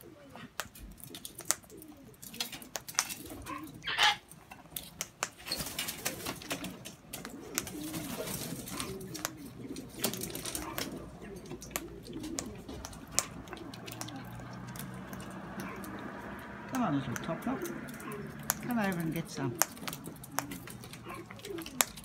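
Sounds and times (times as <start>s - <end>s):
pigeons cooing: 0.0s - 22.0s
sharp clicks: 6.5s - 7.8s, 9.0s - 22.0s.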